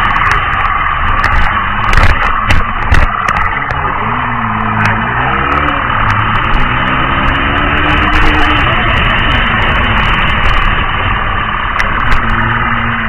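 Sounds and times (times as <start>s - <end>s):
car engine: 0.0s - 13.0s
road noise: 0.0s - 13.0s.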